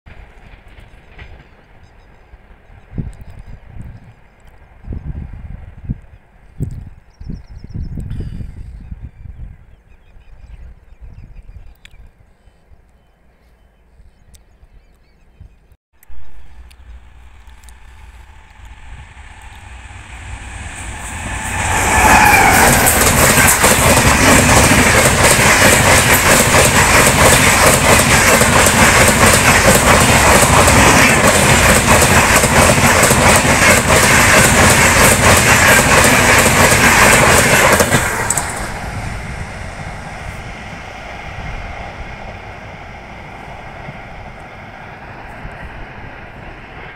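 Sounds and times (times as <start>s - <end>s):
train passing at speed: 0.1s - 6.5s, 16.0s - 46.9s
wheels clacking over rail joints: 16.6s - 38.8s.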